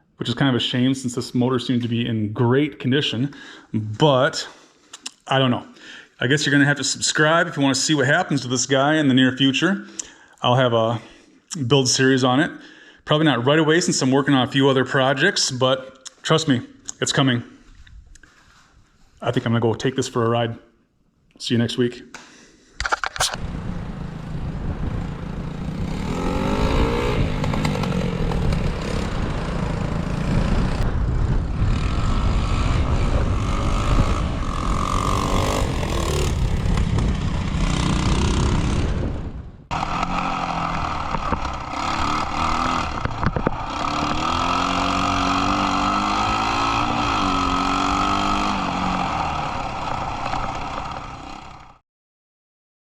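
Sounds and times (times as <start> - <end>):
motorcycle engine revving: 23.3 - 51.8.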